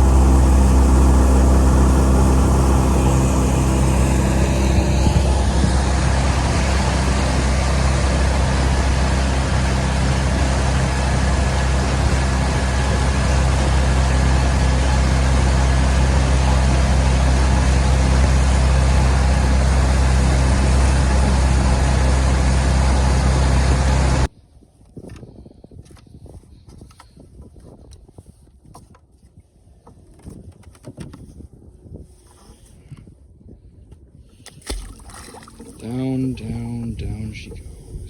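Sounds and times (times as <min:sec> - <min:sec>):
hull noise: 0:00.0 - 0:24.3, 0:34.8 - 0:38.0
outboard motor running: 0:00.0 - 0:24.3, 0:34.4 - 0:38.0
wind: 0:00.0 - 0:38.0.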